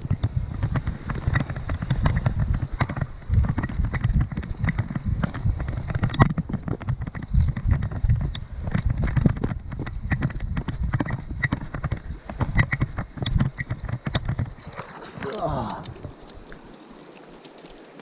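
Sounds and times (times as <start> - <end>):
hurried footsteps on rough ground: 0.0 - 18.0.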